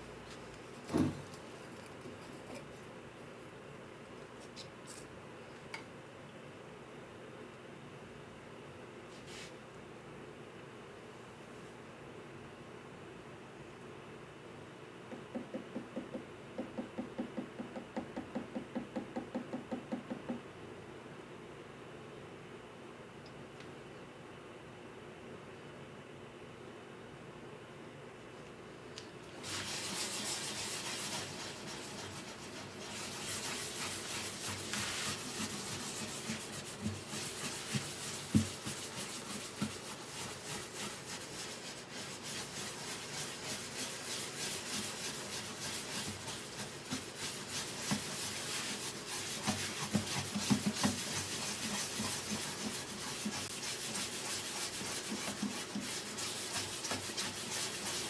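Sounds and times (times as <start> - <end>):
hand sanding wood: 29.4 - 58.0.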